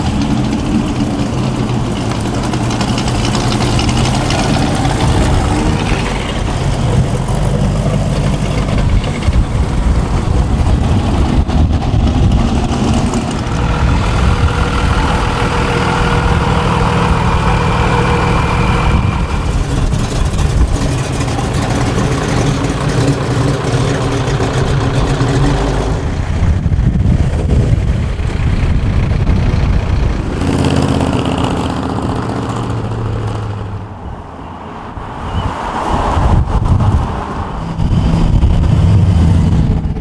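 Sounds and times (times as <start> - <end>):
car engines idling: 0.0 - 35.2.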